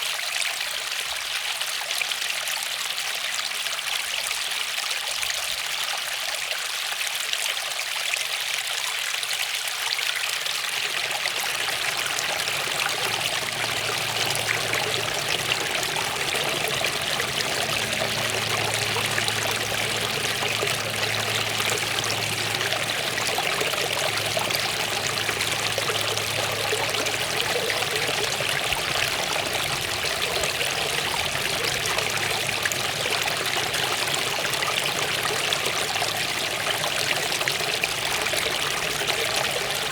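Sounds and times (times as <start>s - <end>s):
waterfall rushing: 10.6s - 39.9s
faint low hum: 10.8s - 39.9s.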